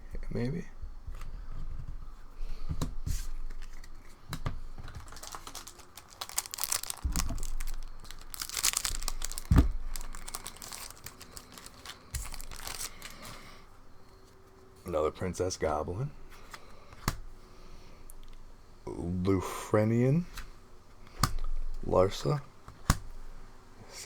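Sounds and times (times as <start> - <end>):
wrapper tearing and crinkling: 4.9 - 13.4
dull thumps: 9.3 - 10.3.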